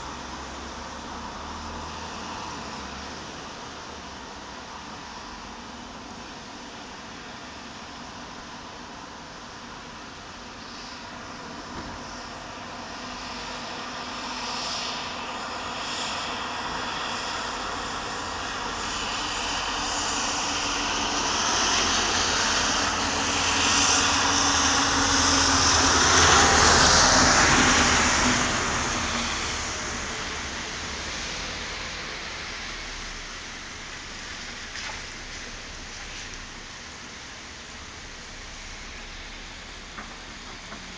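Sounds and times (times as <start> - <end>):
aircraft passing overhead: 12.0 - 36.8.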